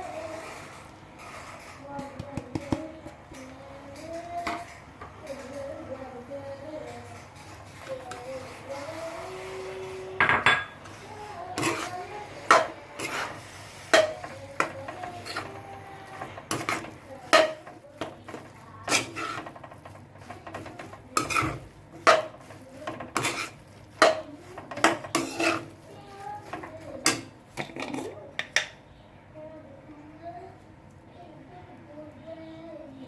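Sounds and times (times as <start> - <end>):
metal utensil scraping a pan: 7.1 - 28.2.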